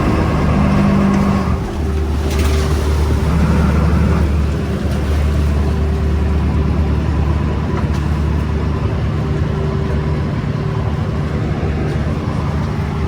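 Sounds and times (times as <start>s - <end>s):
boat engine droning: 0.0s - 13.0s
water noise: 0.0s - 13.0s.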